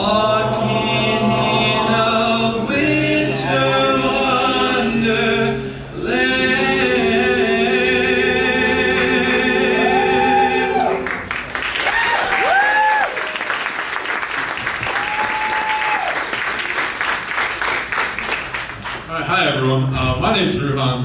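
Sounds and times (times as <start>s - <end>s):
men's a cappella group singing: 0.0s - 11.1s.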